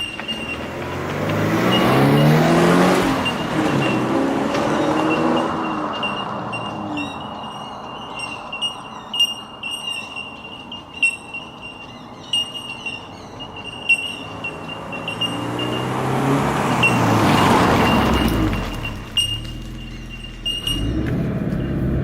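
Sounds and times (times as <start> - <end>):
car engine and exhaust: 0.0 - 10.3, 13.1 - 22.0
chirping and ticking: 0.0 - 22.0.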